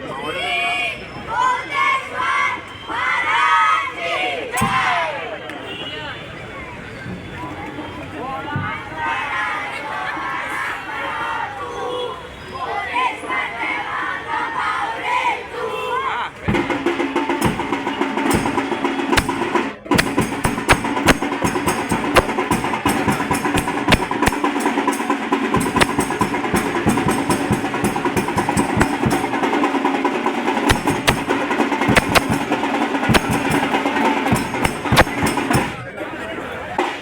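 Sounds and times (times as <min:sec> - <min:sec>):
music with fast drumming: 0:16.5 - 0:35.9.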